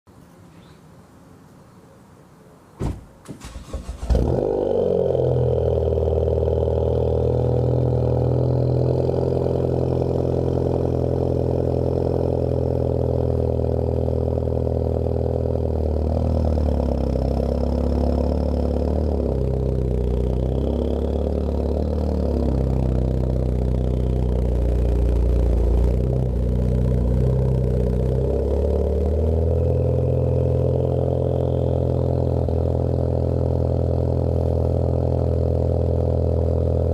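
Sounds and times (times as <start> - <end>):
car engine cranking and starting: 3.2 - 4.8
car engine idling: 3.3 - 36.9.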